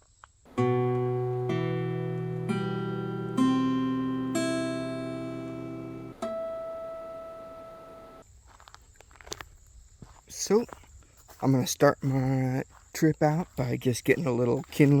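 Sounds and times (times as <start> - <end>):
acoustic guitar chords ringing: 0.5 - 8.2.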